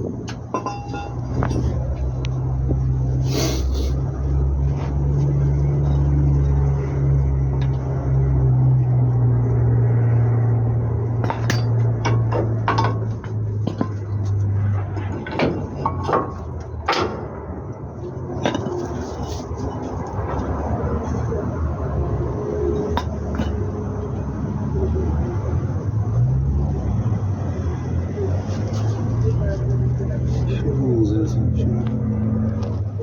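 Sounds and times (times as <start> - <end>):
metal tools clinking: 0.3 - 2.0, 11.2 - 17.2, 18.4 - 20.0
vehicle engine running: 3.8 - 27.3.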